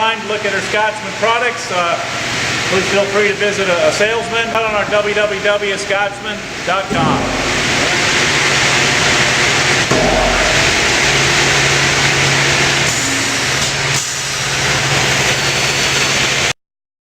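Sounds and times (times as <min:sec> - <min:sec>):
industrial machinery noise: 0:02.4 - 0:09.1, 0:09.8 - 0:16.3.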